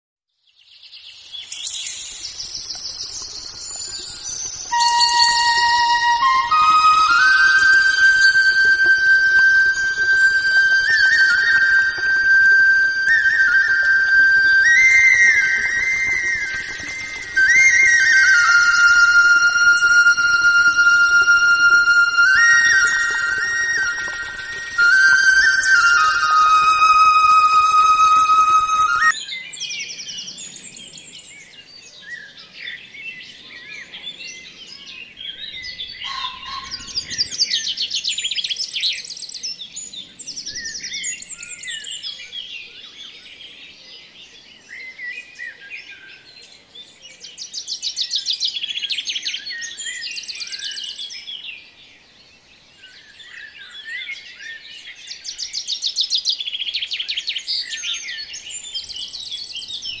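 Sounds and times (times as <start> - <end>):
small birds chirping: 0.5 - 28.1, 28.9 - 60.0
rapid bird trills: 36.0 - 37.8.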